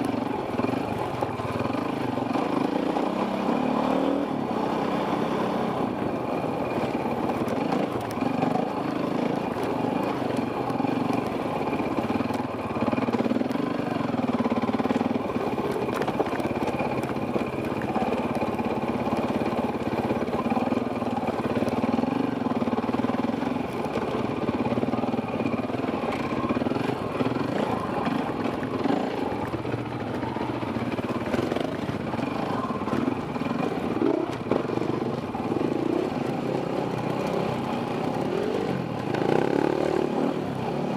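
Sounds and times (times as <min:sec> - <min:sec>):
wind: 0:00.0 - 0:40.9
dirt bike engine revving: 0:00.6 - 0:16.9, 0:31.4 - 0:40.9.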